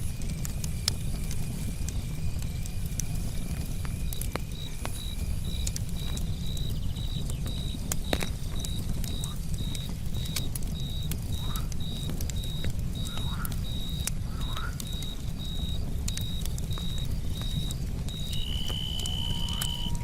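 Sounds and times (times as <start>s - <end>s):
campfire crackling and popping: 0.0s - 20.0s
low rumble of flames: 0.0s - 20.0s
cricket chirping: 4.6s - 20.0s.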